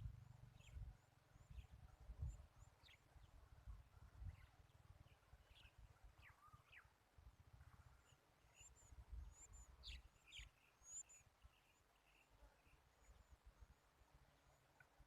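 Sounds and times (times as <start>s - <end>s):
bird chirps: 0.5s - 3.4s, 4.2s - 6.9s, 8.0s - 13.4s.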